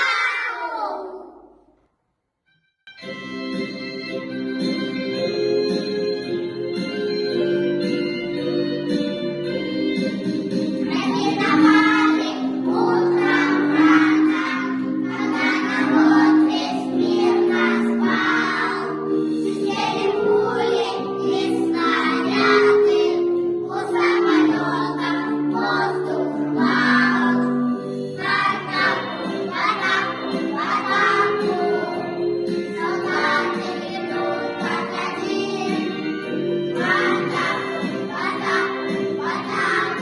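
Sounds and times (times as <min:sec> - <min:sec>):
children's choir singing: 0:00.0 - 0:01.5, 0:10.8 - 0:40.0
instrumental accompaniment: 0:02.6 - 0:40.0.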